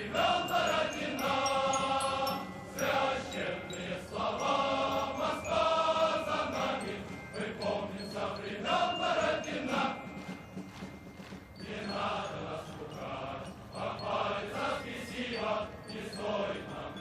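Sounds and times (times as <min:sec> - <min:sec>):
music with long held chords: 0:00.0 - 0:17.0.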